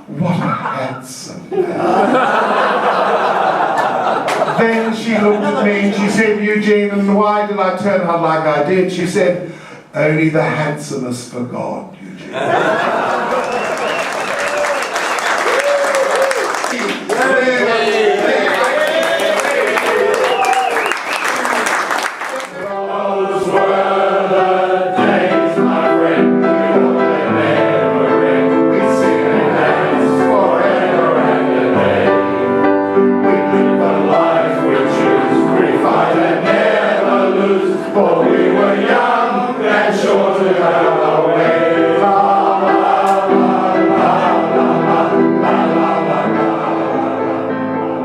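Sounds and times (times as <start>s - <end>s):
choir singing in harmony: 1.8s - 6.4s, 22.5s - 48.0s.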